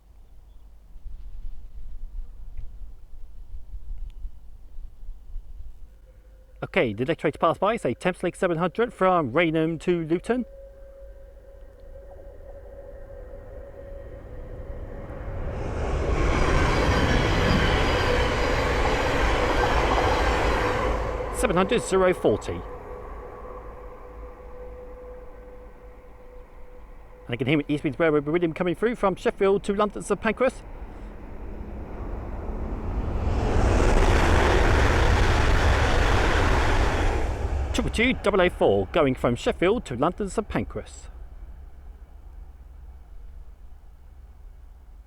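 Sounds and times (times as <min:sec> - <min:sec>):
train wheels rumbling on rails: 0:08.0 - 0:45.0
rush of air: 0:30.6 - 0:39.6.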